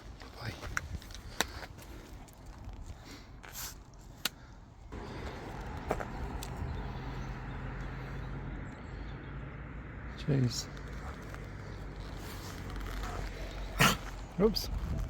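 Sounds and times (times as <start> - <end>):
vehicle engine running: 4.9 - 14.7.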